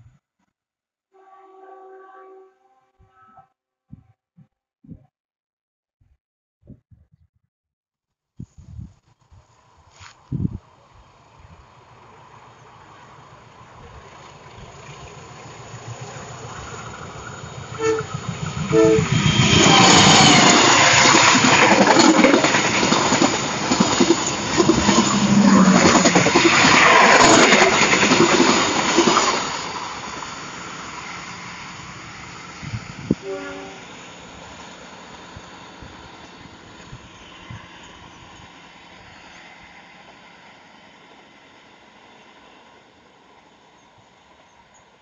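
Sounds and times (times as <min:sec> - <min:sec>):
train horn toots: 0:01.2 - 0:03.6, 0:17.7 - 0:20.1, 0:33.1 - 0:34.0
train rumble: 0:09.4 - 0:45.0.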